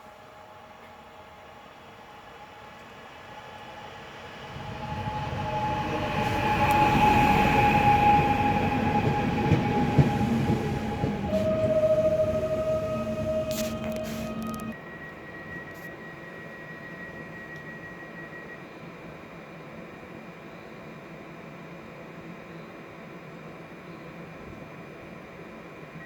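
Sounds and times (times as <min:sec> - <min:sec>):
train high whine: 0:00.0 - 0:26.0
train rail rumble and clatter: 0:02.8 - 0:14.8.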